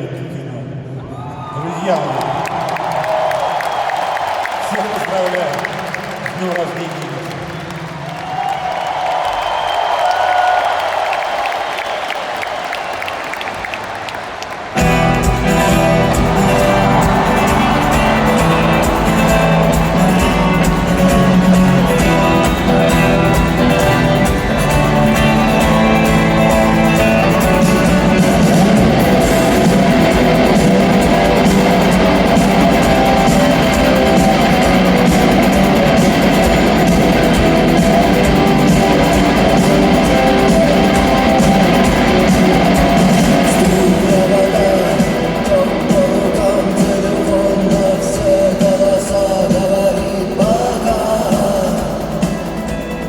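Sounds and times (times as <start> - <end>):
live rock band with guitars: 14.7 - 53.0.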